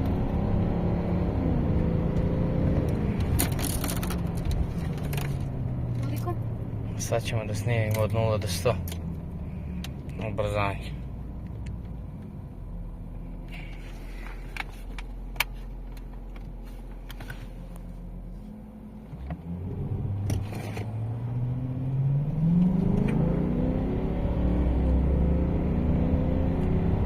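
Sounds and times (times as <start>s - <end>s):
diesel engine revving: 19.4s - 27.0s.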